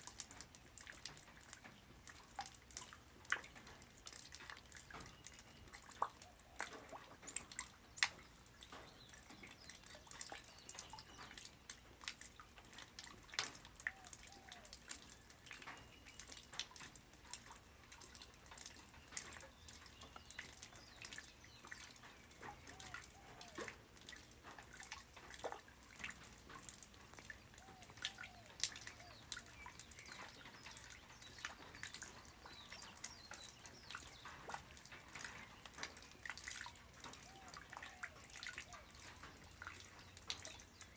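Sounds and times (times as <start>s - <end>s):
faint rain hiss: 0.0s - 40.9s
raindrops tapping: 0.0s - 40.9s.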